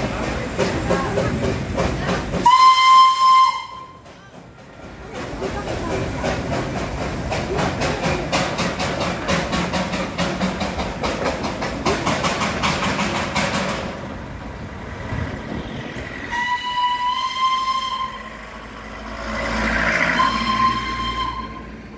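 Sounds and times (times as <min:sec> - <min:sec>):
toy train rhythmic clatter: 0:00.0 - 0:13.8
high train horn: 0:02.4 - 0:04.0, 0:16.3 - 0:18.6, 0:19.7 - 0:21.9.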